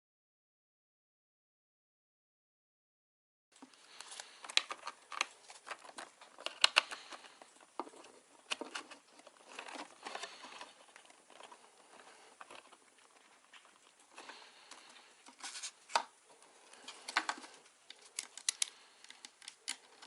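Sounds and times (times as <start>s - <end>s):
computer parts clicking and tapping: 17.1s - 20.0s.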